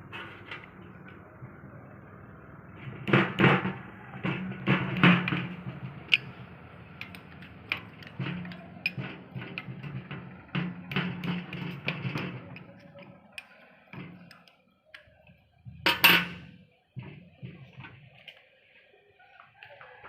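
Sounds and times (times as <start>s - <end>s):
metallic knocks of tools: 5.2s - 15.1s.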